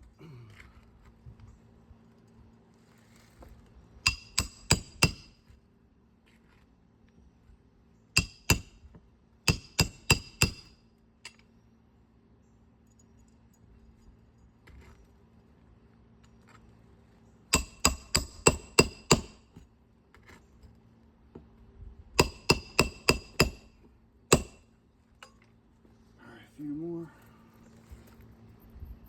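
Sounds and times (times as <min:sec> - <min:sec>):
hammer striking metal: 0:04.1 - 0:05.3, 0:08.2 - 0:08.7, 0:22.2 - 0:23.7, 0:24.3 - 0:24.6.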